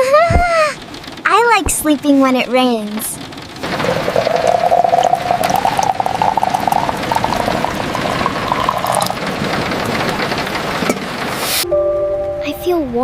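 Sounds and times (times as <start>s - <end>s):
liquid pouring into a cup: 3.6s - 9.3s.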